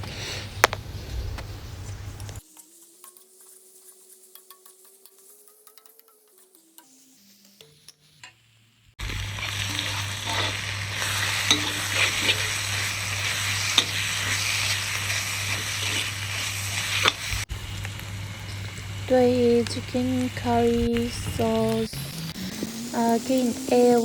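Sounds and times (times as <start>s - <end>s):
masala sizzling in a pan: 0.1s - 24.0s
spoon scraping and tapping pan: 11.4s - 12.4s
low steady hum: 17.3s - 22.1s.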